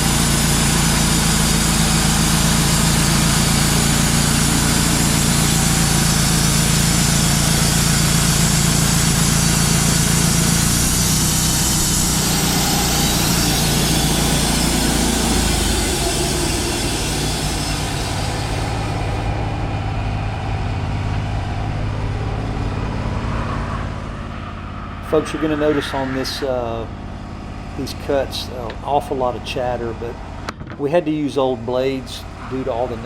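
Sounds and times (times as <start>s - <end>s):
sawmill engine running: 0.0s - 33.0s
saw blade cutting log hiss: 0.1s - 19.2s.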